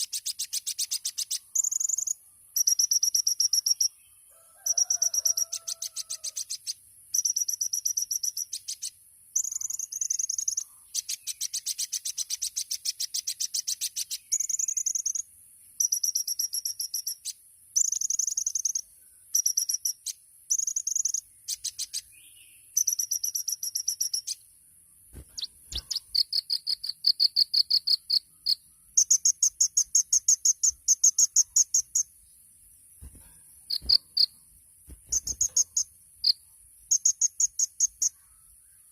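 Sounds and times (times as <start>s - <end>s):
sunbird singing high trills: 0.0s - 4.1s, 4.7s - 24.5s, 35.0s - 38.9s
steady high-pitched hiss: 0.0s - 38.9s.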